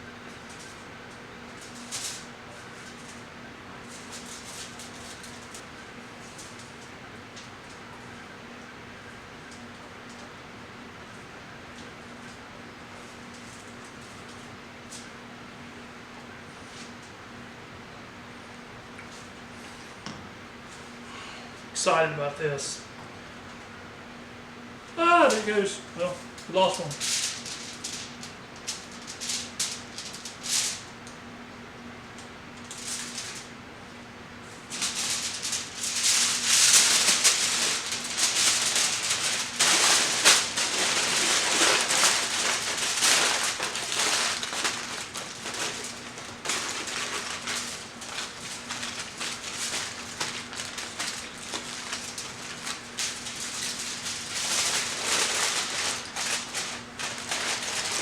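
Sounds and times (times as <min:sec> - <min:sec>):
aluminium foil crinkling: 0:00.2 - 0:08.1, 0:25.3 - 0:31.2, 0:32.2 - 0:33.6, 0:34.4 - 0:58.0.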